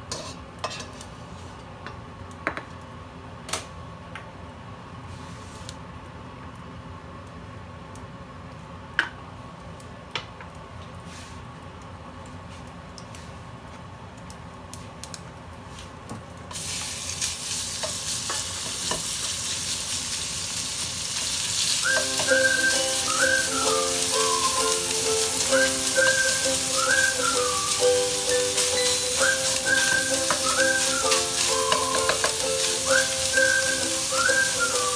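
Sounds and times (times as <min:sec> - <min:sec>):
spatula stirring in wok: 0:00.0 - 0:01.1
minced meat sizzling in oil: 0:16.5 - 0:34.9.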